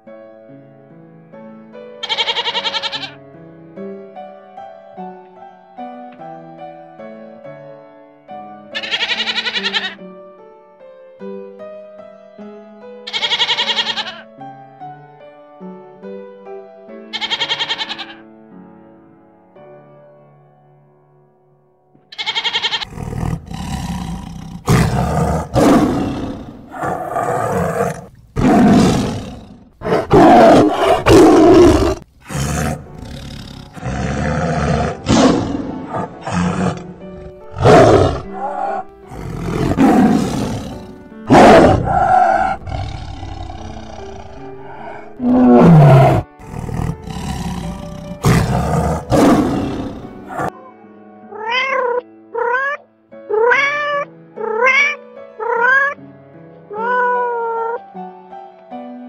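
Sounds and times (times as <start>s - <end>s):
background music: 0.0s - 59.0s
lions roaring and grunting: 22.8s - 50.5s.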